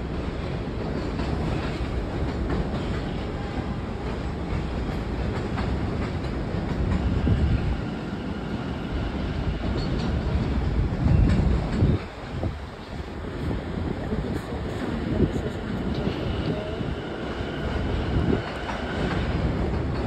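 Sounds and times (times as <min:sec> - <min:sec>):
train rumbling: 0:00.0 - 0:20.0
wheels clicking on rail: 0:00.2 - 0:12.8.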